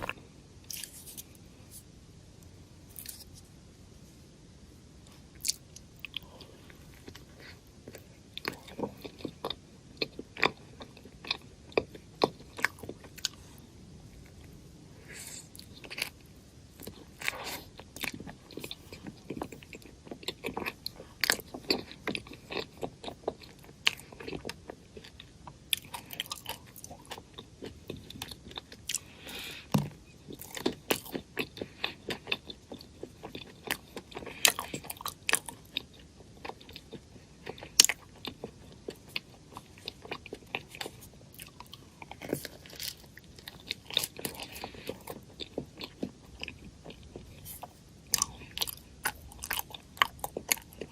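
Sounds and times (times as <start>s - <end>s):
crunchy snack chewing: 0.0s - 1.4s, 2.9s - 3.4s, 16.8s - 50.9s.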